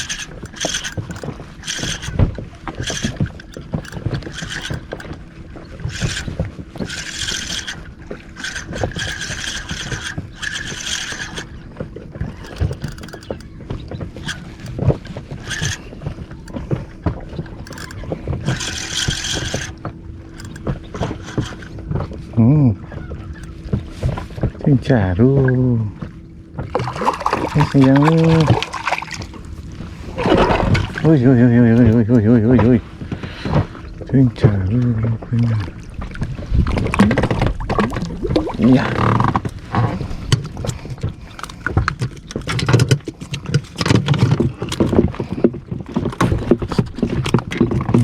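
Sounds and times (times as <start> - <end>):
fishing reel cranking: 0.0 - 13.5, 14.2 - 14.8, 15.4 - 21.8, 26.7 - 29.4, 36.9 - 39.6
faint steady hum: 0.0 - 48.0
water noise: 0.0 - 48.0.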